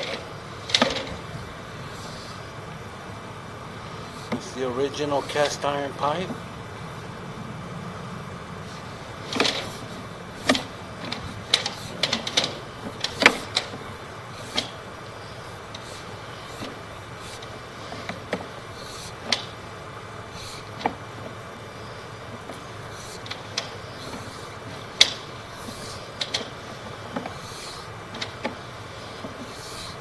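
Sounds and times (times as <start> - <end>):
sharp knocks and clicks: 0.0 - 1.4, 9.2 - 14.8, 20.4 - 21.4, 22.4 - 29.8
steady low hum: 0.0 - 30.0.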